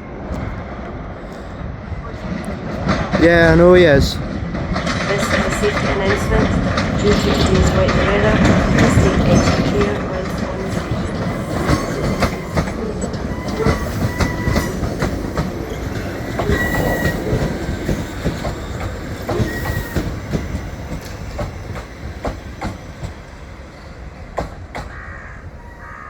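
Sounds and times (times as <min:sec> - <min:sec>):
train wheels clicking over rails: 0:00.2 - 0:25.1
train wheel squeals: 0:05.1 - 0:23.7.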